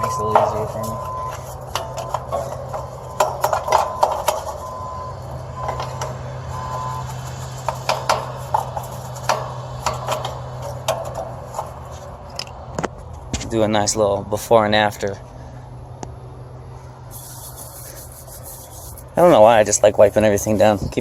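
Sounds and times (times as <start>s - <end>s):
hand tools clicking and knocking: 0.0s - 4.8s, 5.6s - 12.9s.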